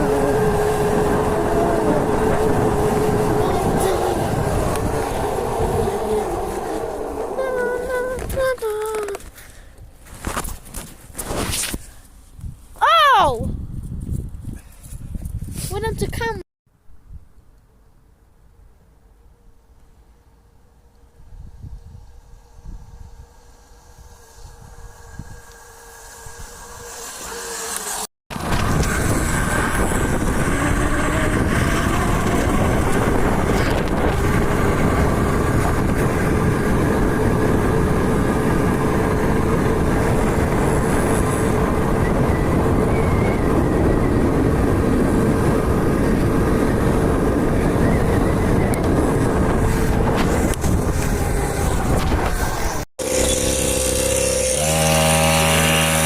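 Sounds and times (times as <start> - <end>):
dirt bike engine running: 0.0 - 8.6, 22.2 - 56.0.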